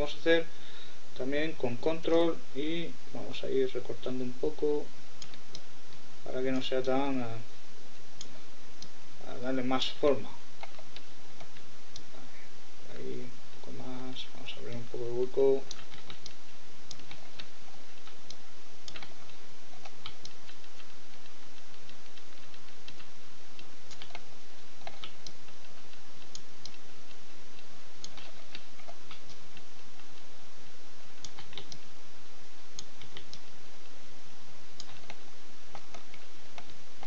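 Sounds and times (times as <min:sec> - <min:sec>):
microphone hiss: 0:00.0 - 0:37.0
mouse and keyboard clicks: 0:15.6 - 0:24.2, 0:31.2 - 0:31.8, 0:34.8 - 0:36.8.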